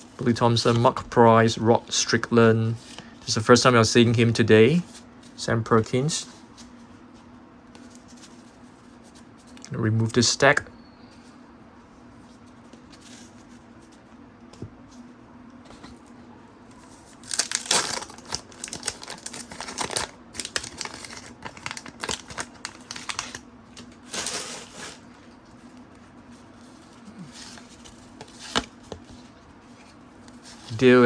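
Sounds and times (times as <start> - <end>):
wrapper tearing and crinkling: 17.1 - 25.0.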